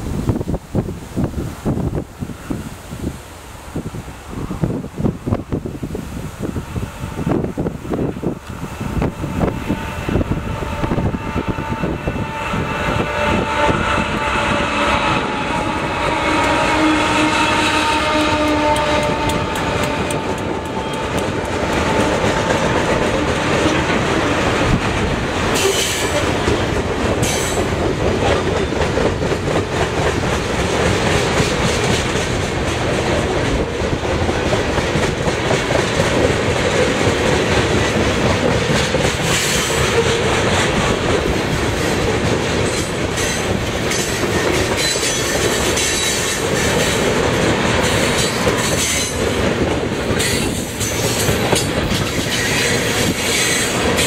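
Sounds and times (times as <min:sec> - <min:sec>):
diesel locomotive engine drone: 0:00.0 - 0:54.0
wheels clicking over rail joints: 0:18.4 - 0:54.0.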